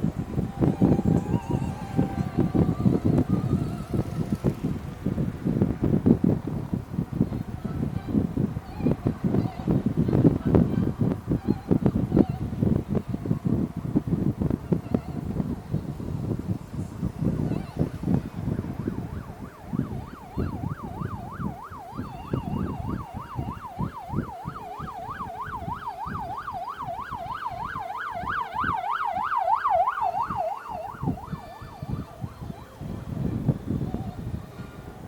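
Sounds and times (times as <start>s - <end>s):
emergency siren warbling: 0.0s - 4.9s, 17.1s - 34.6s
wind and road noise: 0.0s - 35.0s.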